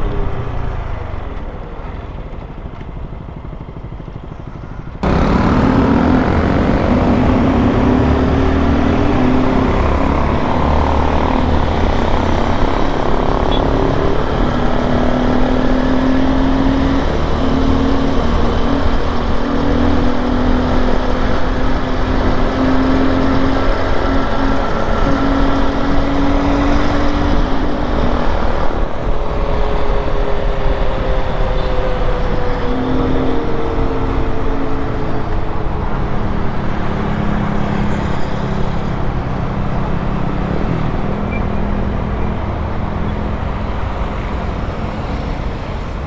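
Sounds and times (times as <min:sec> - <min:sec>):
motorcycle engine running: 0:00.2 - 0:35.0.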